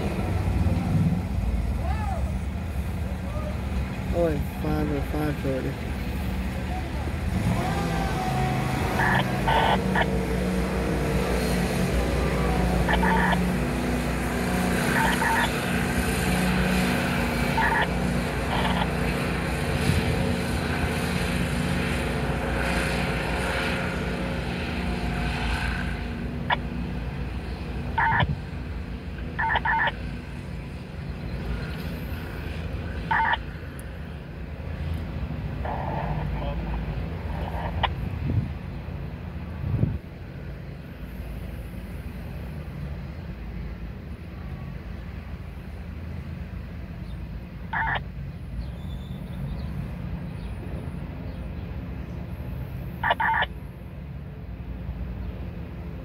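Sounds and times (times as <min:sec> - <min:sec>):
freight train rumbling: 0:00.0 - 0:29.5.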